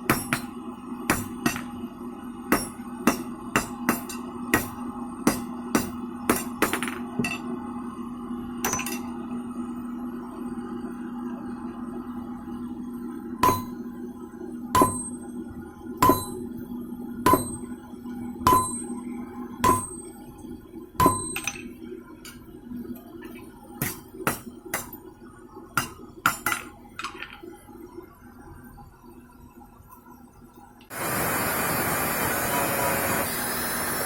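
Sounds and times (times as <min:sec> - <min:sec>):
hammer striking steel on anvil: 0:00.0 - 0:01.8, 0:02.5 - 0:07.5, 0:08.6 - 0:09.1, 0:13.4 - 0:14.0, 0:14.8 - 0:15.3, 0:16.0 - 0:16.6, 0:17.2 - 0:17.8, 0:18.4 - 0:20.2, 0:21.0 - 0:22.4, 0:23.8 - 0:25.1, 0:25.8 - 0:26.8
steady low hum: 0:00.0 - 0:33.2.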